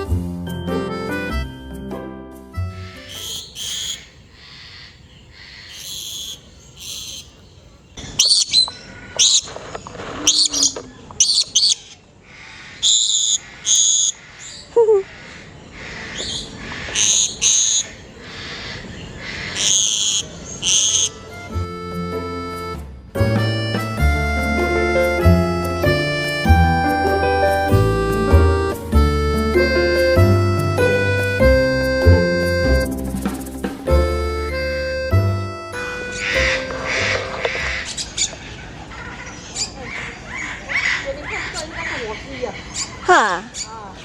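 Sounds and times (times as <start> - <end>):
birds calling and squawking: 2.7 - 21.9, 35.7 - 44.0.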